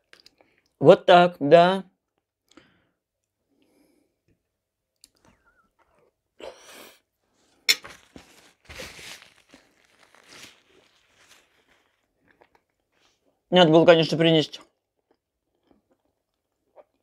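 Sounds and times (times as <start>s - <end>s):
quiet chewing: 0.0s - 0.8s, 4.3s - 6.2s, 9.2s - 13.4s, 14.6s - 17.0s
paper napkin rustling: 7.7s - 12.0s.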